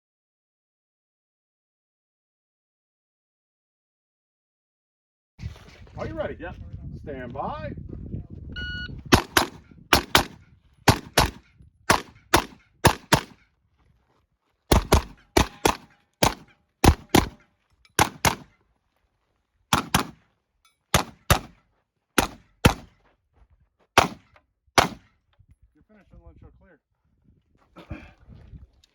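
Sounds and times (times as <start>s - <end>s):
rifle fired in double taps: 9.1s - 13.4s, 14.7s - 17.4s, 18.0s - 18.5s, 19.7s - 20.2s, 20.9s - 21.6s, 22.2s - 22.9s, 24.0s - 25.1s.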